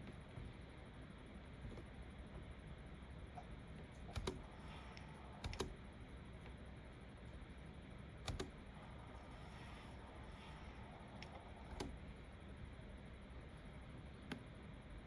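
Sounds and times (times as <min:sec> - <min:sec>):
faint room hiss: 0:00.0 - 0:15.0
keyboard keys clicking: 0:04.0 - 0:05.7, 0:08.2 - 0:08.6.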